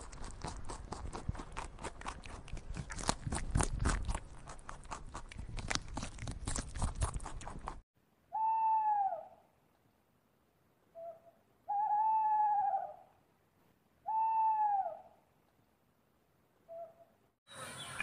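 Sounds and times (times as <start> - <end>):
rabbits chewing leaves: 0.0 - 7.8.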